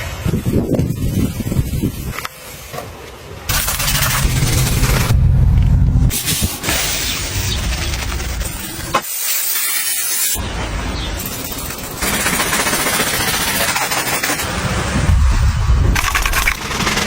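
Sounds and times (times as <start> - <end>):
pressure washer jet spraying: 6.1 - 10.4.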